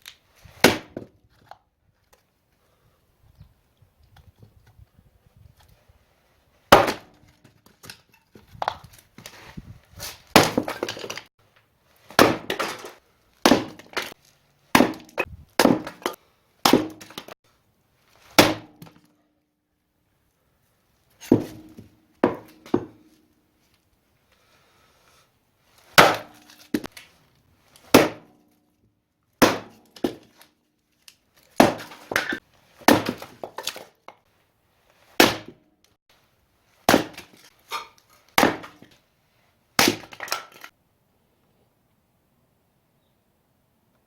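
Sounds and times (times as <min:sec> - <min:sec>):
axe splitting firewood: 0:00.0 - 0:01.6, 0:06.7 - 0:11.3, 0:11.9 - 0:17.4, 0:18.1 - 0:19.2, 0:21.2 - 0:23.3, 0:25.8 - 0:28.6, 0:29.4 - 0:34.2, 0:34.9 - 0:35.6, 0:36.7 - 0:39.0, 0:39.8 - 0:40.7.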